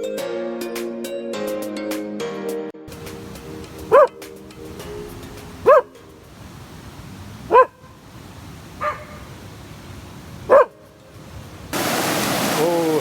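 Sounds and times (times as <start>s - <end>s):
dog barking: 3.9s - 4.2s, 5.6s - 6.0s, 7.5s - 8.0s, 8.8s - 9.4s, 10.4s - 10.9s.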